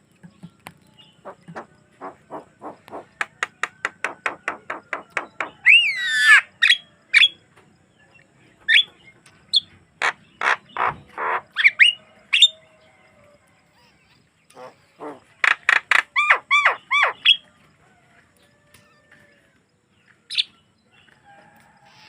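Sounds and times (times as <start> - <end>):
bird chattering notes: 1.1 - 6.4
bird harsh grating calls: 1.2 - 6.8, 9.6 - 12.5, 14.5 - 17.4
bird warbling squeal: 5.6 - 6.8.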